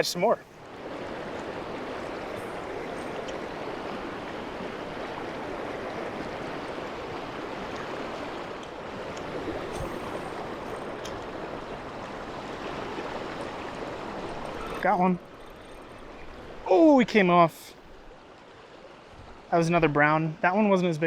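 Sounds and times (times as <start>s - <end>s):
river flowing: 0.0s - 21.0s
faint ticks: 3.0s - 3.4s.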